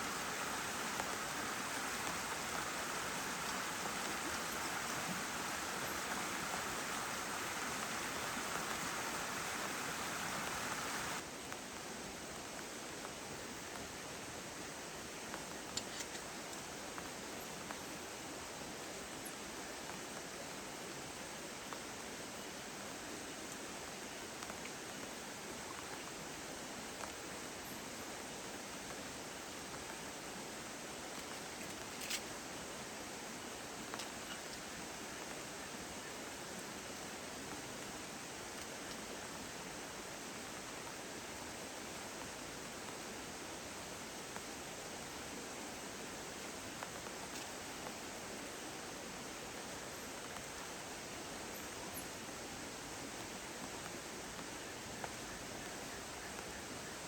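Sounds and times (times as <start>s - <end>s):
heavy rain hissing: 0.0s - 11.3s
steady rain: 0.0s - 57.0s.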